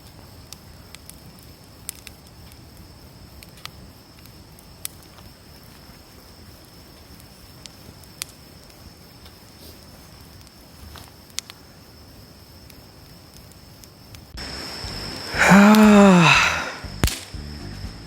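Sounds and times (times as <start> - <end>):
burning wood popping: 0.0 - 14.4
campfire crackling: 0.0 - 17.4
drawn-out vocal sound: 15.3 - 16.8.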